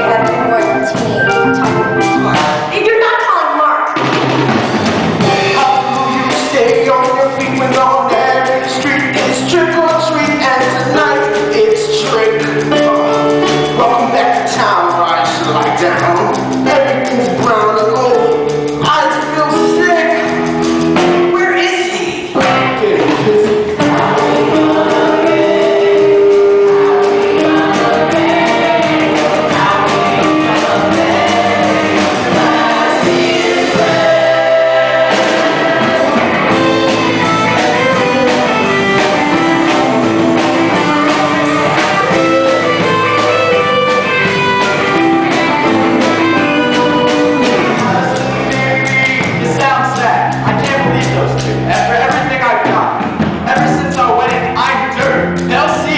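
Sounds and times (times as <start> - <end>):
live rock band: 0.0 - 55.9
cast singing together: 22.4 - 50.0.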